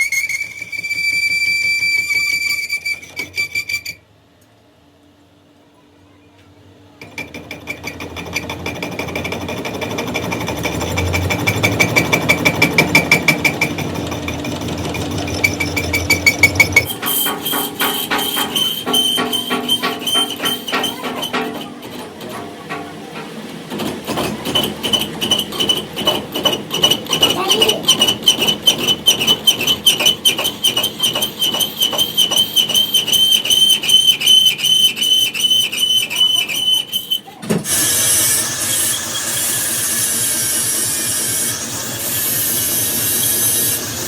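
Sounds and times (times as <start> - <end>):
metal-on-metal knocking: 7.0 - 33.6
machine whine: 7.9 - 44.0.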